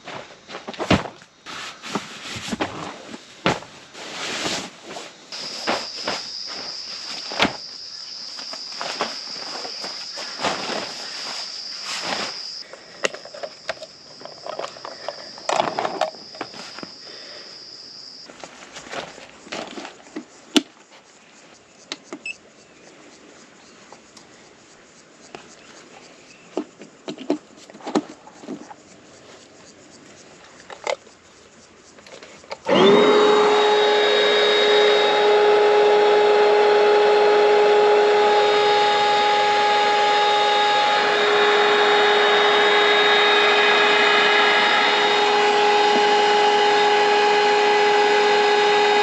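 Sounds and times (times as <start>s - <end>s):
insect high drone: 0.0s - 26.5s, 28.3s - 49.0s
clicks and rustles of handling: 8.4s - 16.9s.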